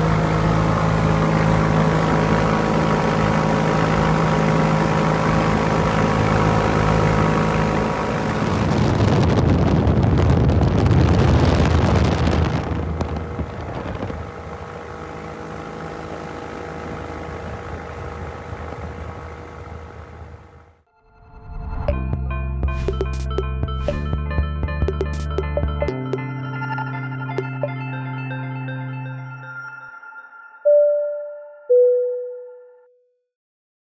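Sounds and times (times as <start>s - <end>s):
ultralight aircraft engine running: 0.0s - 10.3s, 11.6s - 20.8s.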